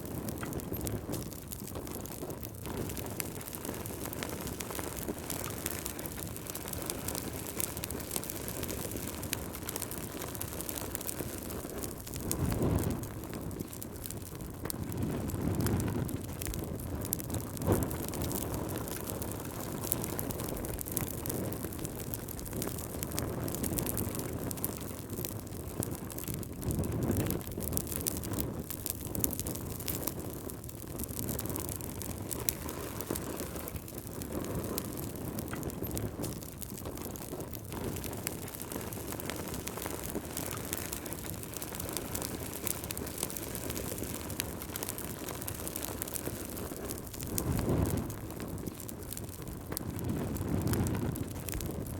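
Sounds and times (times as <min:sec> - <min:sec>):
gusting wind: 0:00.0 - 0:51.9
wood fire crackling: 0:00.0 - 0:51.9.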